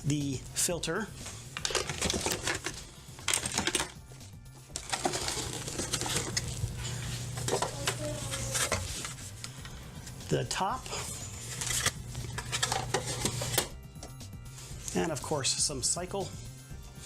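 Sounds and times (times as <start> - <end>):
packaging rustling: 1.4 - 4.0, 4.7 - 9.6, 10.8 - 13.7
plastic parts clicking and rattling: 1.5 - 4.0, 4.8 - 6.5, 11.5 - 13.7.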